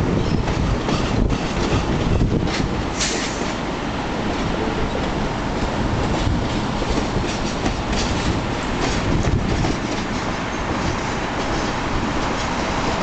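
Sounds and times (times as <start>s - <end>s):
train cars rolling past: 0.0s - 13.0s.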